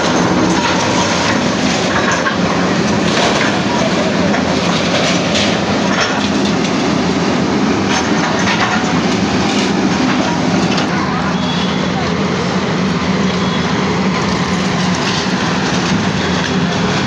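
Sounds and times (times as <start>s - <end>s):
knocks and clatter of breaking material: 0.0s - 10.9s
heavy machine engine running: 0.0s - 17.0s.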